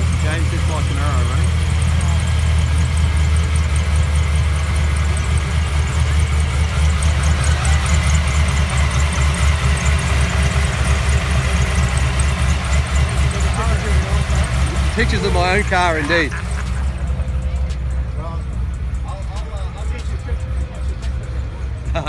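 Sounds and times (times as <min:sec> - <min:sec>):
engine idling with loping beat: 0:00.0 - 0:22.0.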